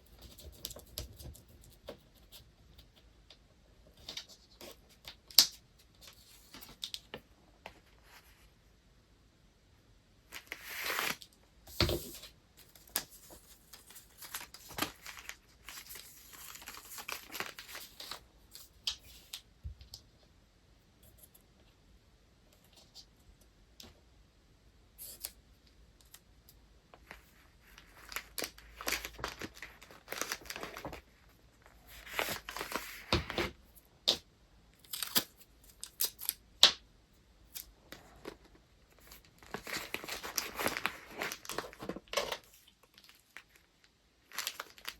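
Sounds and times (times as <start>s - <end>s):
paper rustling and crinkling: 10.3s - 19.4s, 27.0s - 33.6s, 37.9s - 44.9s.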